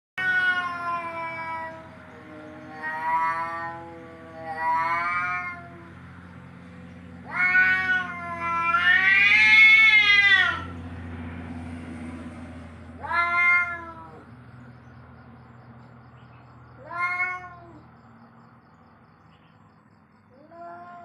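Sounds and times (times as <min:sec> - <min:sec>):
cat meowing and yowling: 0:00.2 - 0:06.0, 0:07.2 - 0:10.7, 0:13.0 - 0:14.3, 0:16.8 - 0:17.9, 0:20.3 - 0:21.0.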